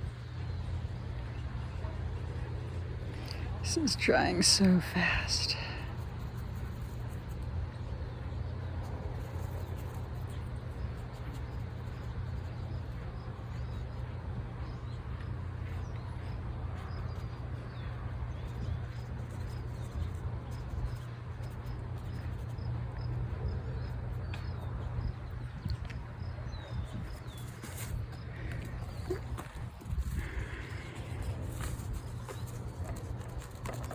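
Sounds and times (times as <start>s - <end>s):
wind buffeting microphone: 22.6s - 33.9s.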